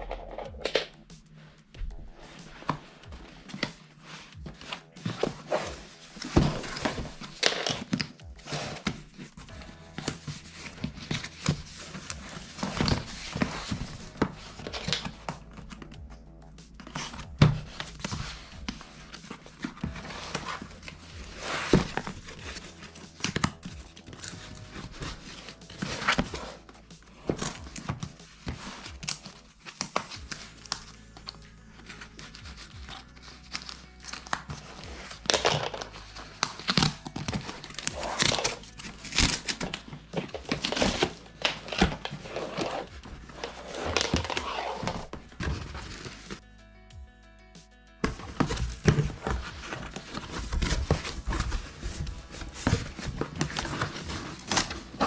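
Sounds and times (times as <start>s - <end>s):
background music: 0.0s - 55.0s
packaging crinkling and tearing: 16.8s - 46.4s, 48.3s - 55.0s.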